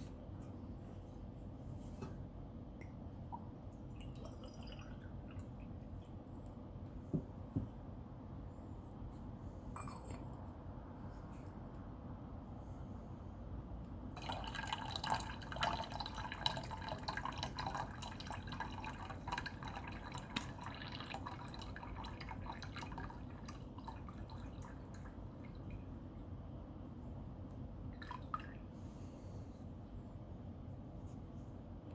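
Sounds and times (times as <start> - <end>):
water trickling and dripping: 14.2 - 25.8.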